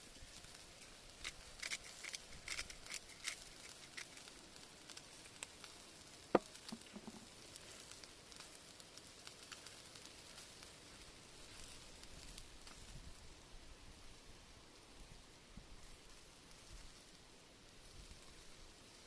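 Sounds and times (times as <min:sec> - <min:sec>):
fire popping: 0:00.0 - 0:13.4
sharp crack of fire: 0:00.0 - 0:14.2
campfire crackling: 0:00.0 - 0:19.0.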